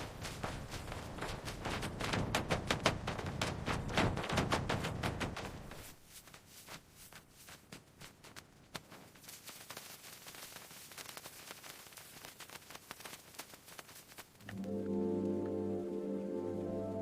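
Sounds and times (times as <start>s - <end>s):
crackling clicks: 8.0s - 15.6s
steady hiss: 8.8s - 17.0s.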